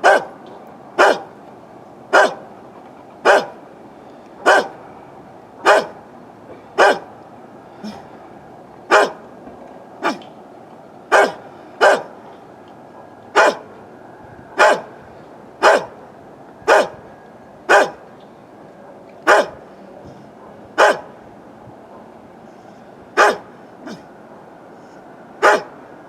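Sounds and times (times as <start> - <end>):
dog barking: 0.0 - 0.3, 1.0 - 1.3, 2.1 - 2.4, 3.2 - 3.6, 4.4 - 4.8, 5.6 - 6.0, 6.8 - 7.1, 8.9 - 9.2, 11.1 - 12.1, 13.4 - 13.7, 14.6 - 14.9, 15.6 - 16.0, 16.7 - 17.0, 17.7 - 18.0, 19.3 - 19.6, 20.5 - 21.1, 23.2 - 24.0, 25.4 - 25.8.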